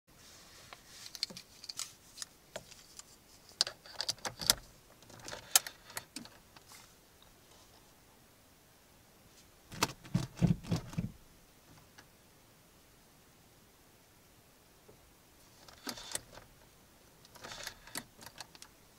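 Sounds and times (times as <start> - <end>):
low thumps: 9.7 - 11.2.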